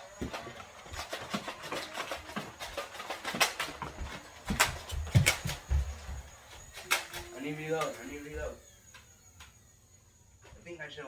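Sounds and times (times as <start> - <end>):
toy blasters firing: 6.7 - 8.2.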